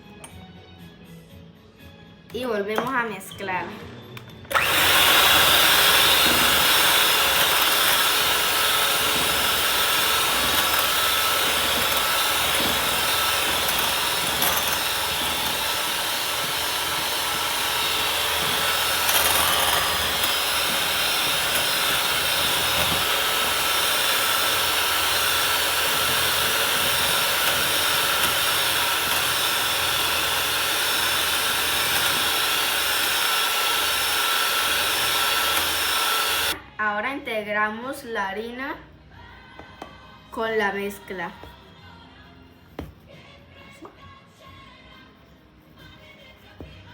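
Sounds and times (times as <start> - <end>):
electric hand mixer beating batter: 4.5 - 36.6.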